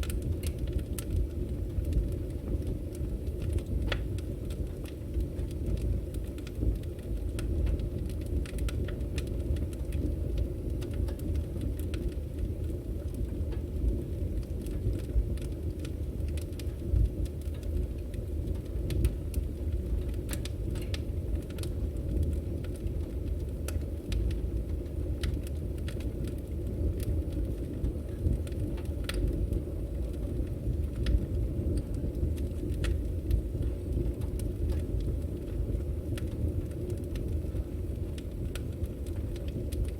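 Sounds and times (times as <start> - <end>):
firewood burning and crackling: 0.0 - 39.9.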